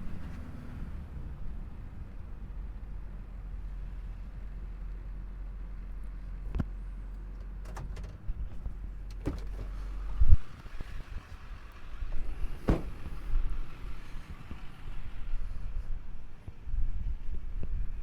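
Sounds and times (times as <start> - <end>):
diesel truck engine humming: 0.0 - 16.5
loud thud: 9.2 - 9.9, 12.4 - 13.5.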